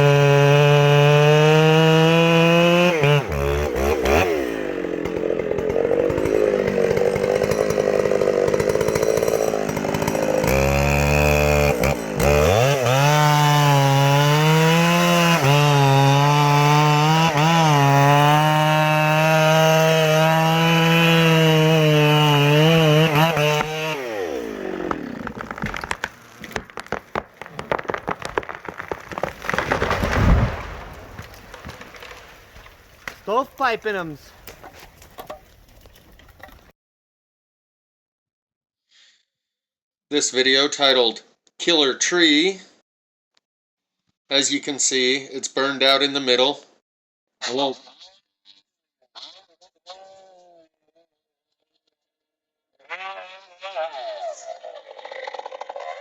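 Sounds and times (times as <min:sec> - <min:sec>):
chainsaw cutting wood: 0:00.0 - 0:36.7
sharp cracks and knocks: 0:24.8 - 0:33.3, 0:34.4 - 0:36.7
loud thump: 0:29.8 - 0:31.0.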